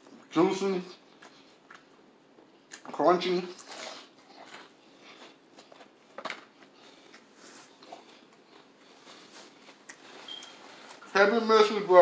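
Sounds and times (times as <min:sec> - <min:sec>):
chewing crunchy fried chicken: 0:03.5 - 0:10.2.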